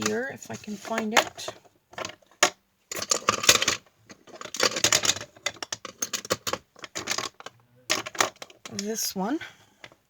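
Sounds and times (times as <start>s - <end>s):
craft tools clattering on tabletop: 0.9s - 8.8s.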